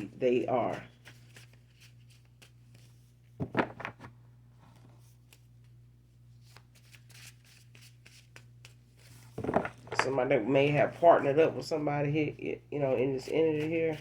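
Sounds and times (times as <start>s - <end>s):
cards being shuffled: 0.4s - 5.8s, 6.4s - 9.9s.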